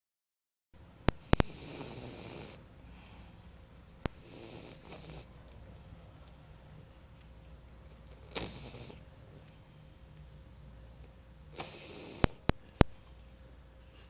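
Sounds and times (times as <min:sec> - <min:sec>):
dog snoring: 0:01.1 - 0:02.7, 0:04.1 - 0:05.5, 0:08.1 - 0:09.4, 0:11.5 - 0:13.0.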